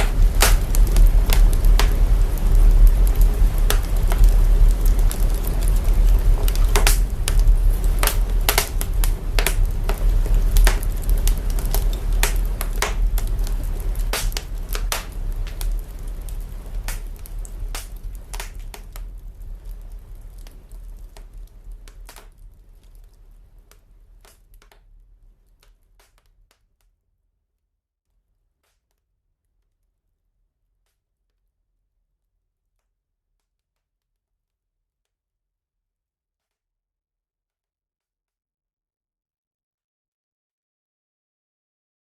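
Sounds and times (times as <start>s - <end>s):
deep bass rumble: 0.0s - 21.9s
processed fire crackling: 0.0s - 26.5s.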